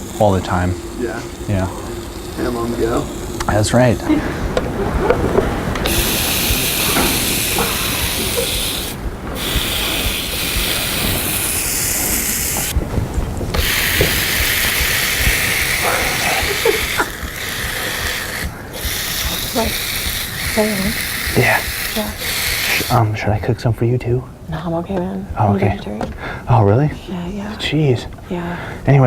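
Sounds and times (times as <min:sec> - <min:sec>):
meat sizzling on a grill: 0:00.0 - 0:04.3, 0:05.8 - 0:12.8, 0:13.6 - 0:23.3.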